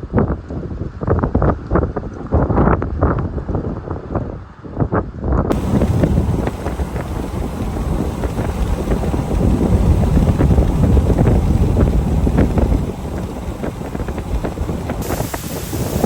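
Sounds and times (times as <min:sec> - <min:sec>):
storm wind buffeting microphone: 0:05.5 - 0:16.0.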